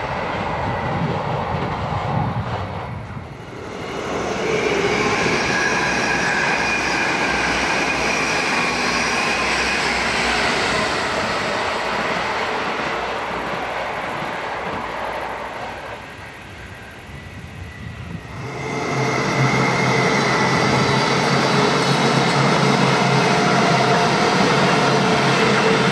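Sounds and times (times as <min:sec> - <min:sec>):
train wheels rumbling: 0:00.0 - 0:25.9.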